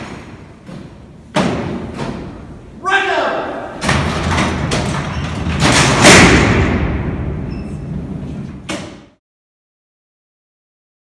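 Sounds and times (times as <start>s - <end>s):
steel cell door clanging: 3.8s - 7.9s.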